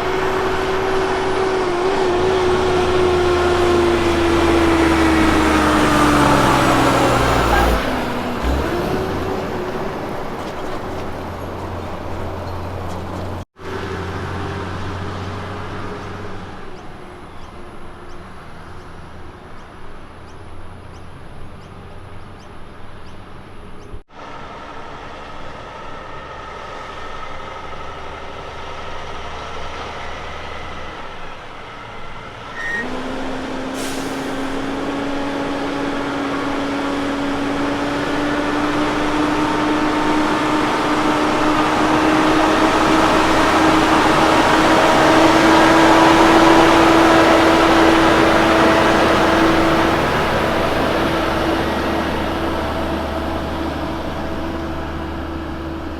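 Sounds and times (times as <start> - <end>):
heavy diesel truck engine under load: 0.0 - 55.9.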